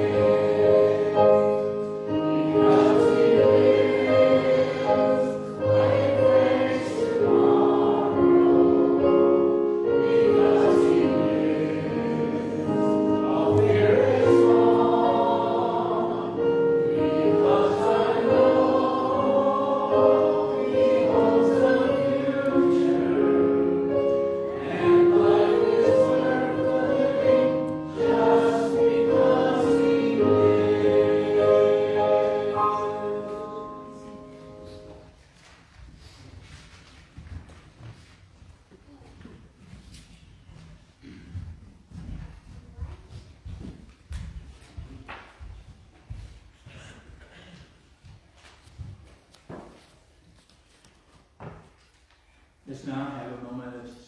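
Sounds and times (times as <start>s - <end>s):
choir singing in harmony: 0.0s - 35.1s.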